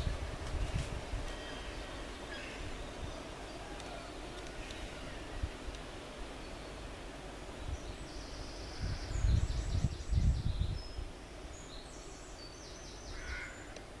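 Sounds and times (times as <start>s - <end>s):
wind buffeting microphone: 0.0s - 1.8s, 8.6s - 11.2s
small birds singing: 0.0s - 14.0s.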